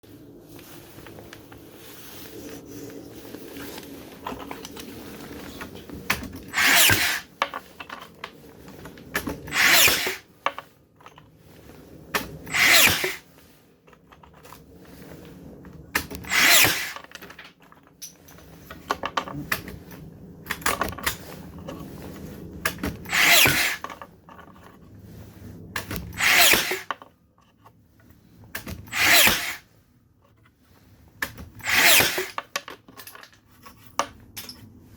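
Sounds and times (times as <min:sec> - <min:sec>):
cordless nailer firing: 0:06.1 - 0:07.3, 0:09.2 - 0:10.2, 0:12.2 - 0:13.2, 0:16.0 - 0:17.0, 0:22.7 - 0:23.8, 0:25.8 - 0:27.0, 0:28.6 - 0:29.6, 0:31.2 - 0:32.5.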